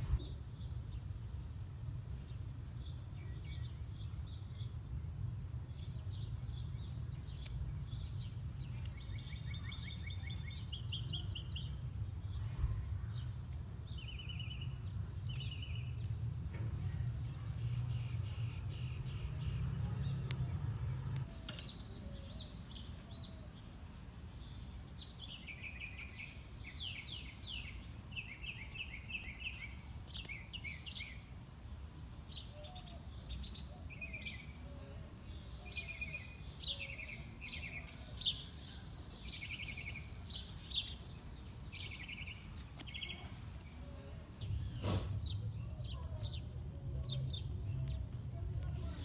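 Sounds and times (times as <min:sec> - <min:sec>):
low background rumble: 0:00.0 - 0:21.3, 0:43.0 - 0:49.0
songbirds chirping: 0:00.0 - 0:49.0.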